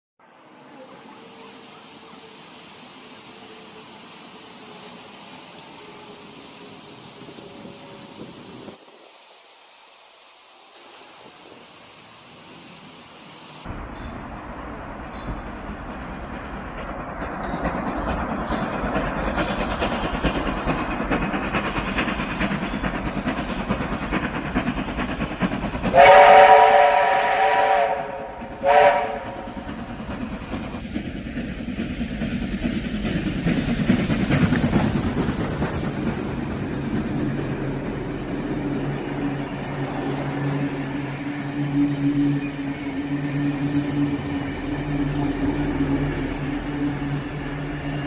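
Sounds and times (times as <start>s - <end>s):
steam train running on rails: 0.2s - 48.0s
steam whistle: 25.9s - 29.6s.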